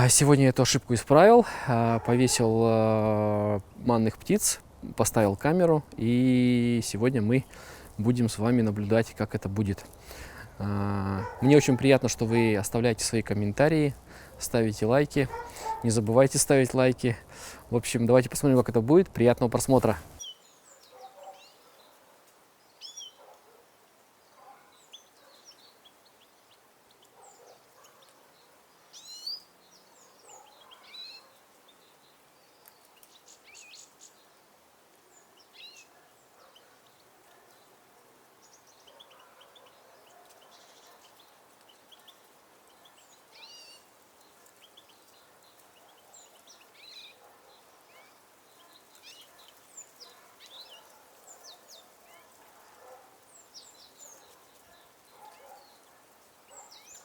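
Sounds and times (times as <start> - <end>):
low background hiss: 0.0 - 20.8
songbirds chirping: 0.0 - 57.0.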